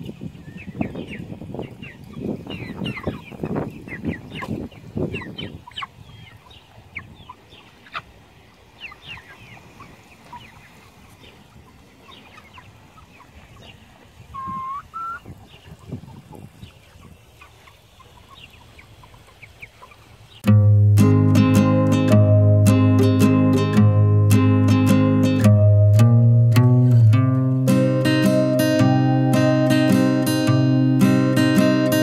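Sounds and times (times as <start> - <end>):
chicks peeping: 0.0 - 20.5
held tone stepping up in pitch: 20.5 - 32.0.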